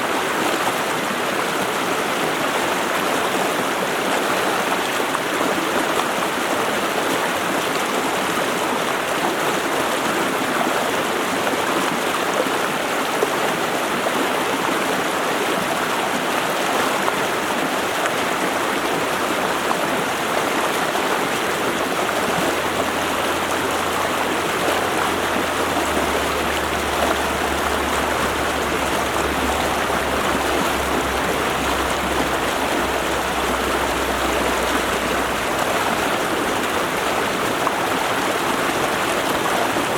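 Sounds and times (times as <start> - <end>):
stream rushing over rocks: 0.0 - 39.9
low steady hum: 21.4 - 39.9.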